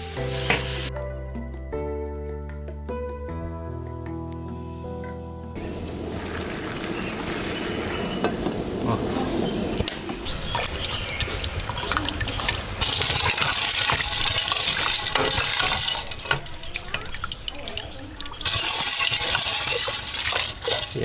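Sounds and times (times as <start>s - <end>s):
water running and splashing: 5.6s - 21.0s.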